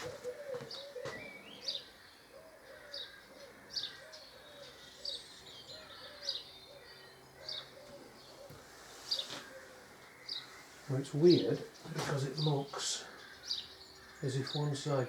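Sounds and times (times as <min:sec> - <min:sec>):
pigeon cooing: 0:00.0 - 0:05.1, 0:05.7 - 0:09.9
small birds chirping: 0:00.0 - 0:15.0.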